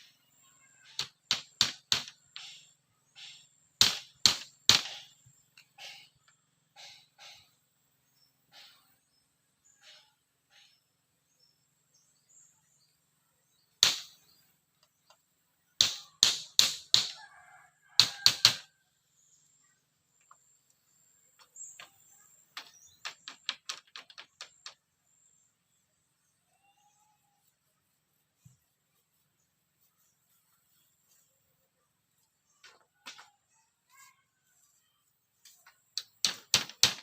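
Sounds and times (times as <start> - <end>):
sharp knocks: 1.0 - 2.6, 3.8 - 5.1, 13.8 - 14.2, 15.8 - 17.2, 36.0 - 37.0.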